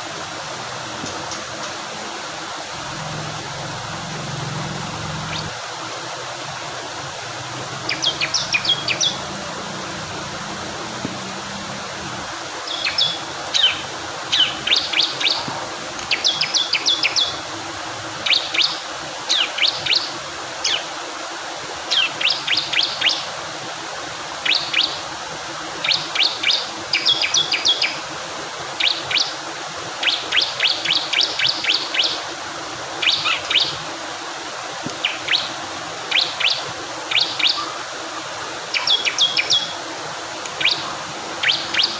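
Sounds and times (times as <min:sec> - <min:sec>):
flowing water: 0:00.0 - 0:41.9
bird chirping rapidly: 0:02.9 - 0:05.6, 0:07.8 - 0:10.5, 0:12.7 - 0:15.4, 0:36.1 - 0:37.7, 0:38.7 - 0:39.8, 0:40.6 - 0:41.9.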